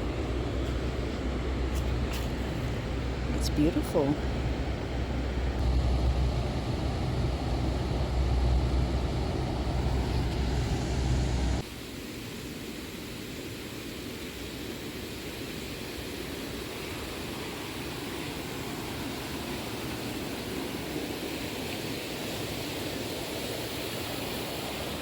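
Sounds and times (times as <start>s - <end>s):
low rumble: 4.2s - 11.6s
hissy rush of water: 5.6s - 25.0s.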